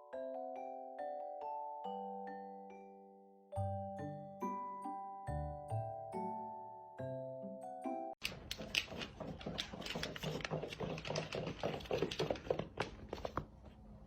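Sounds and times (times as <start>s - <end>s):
glockenspiel-like mallet music: 0.0s - 8.2s.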